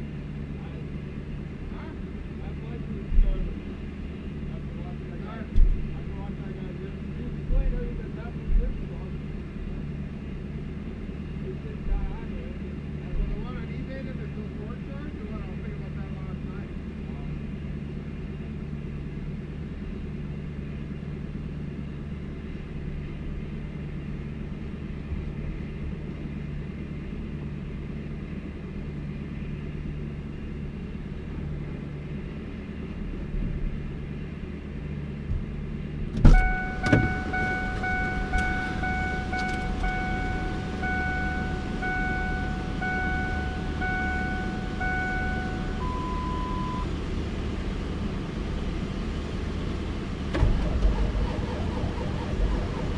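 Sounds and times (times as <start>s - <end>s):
vehicle rumble: 0.0s - 52.9s
high beep: 36.3s - 46.9s
vehicle warning chime: 36.3s - 46.9s.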